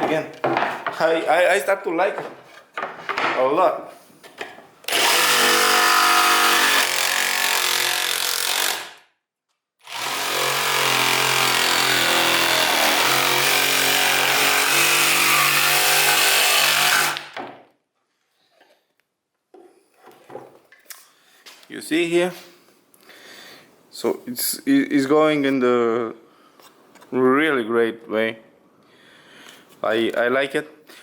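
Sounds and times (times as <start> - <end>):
jigsaw cutting wood: 4.9 - 9.0, 9.8 - 17.4.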